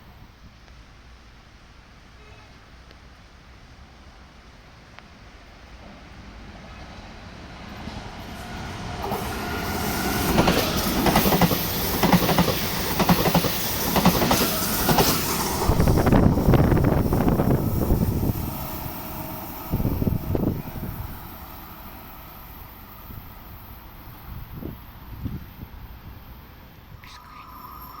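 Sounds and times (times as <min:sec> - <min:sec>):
train wheels clattering over rail joints: 0:09.1 - 0:16.3.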